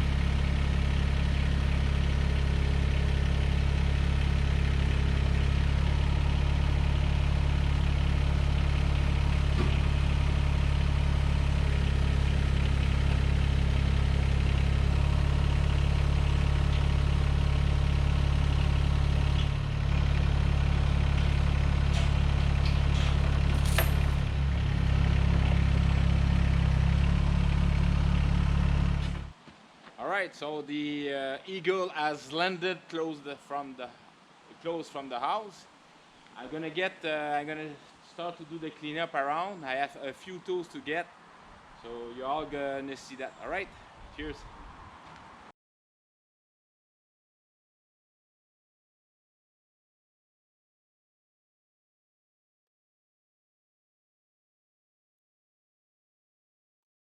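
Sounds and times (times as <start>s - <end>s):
tractor diesel engine running: 0.0s - 29.3s.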